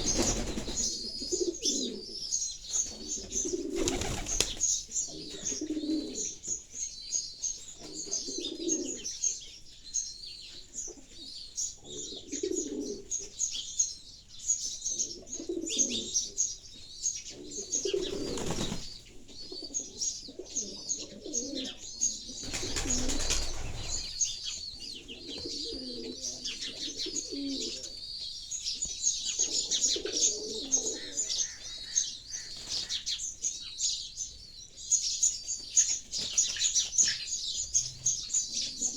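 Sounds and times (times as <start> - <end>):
pigeons cooing: 0.0 - 6.5, 7.8 - 9.2, 10.9 - 13.4, 14.9 - 16.5, 17.3 - 28.0, 28.8 - 33.1, 36.5 - 38.9
sparrows chirping: 0.0 - 38.9.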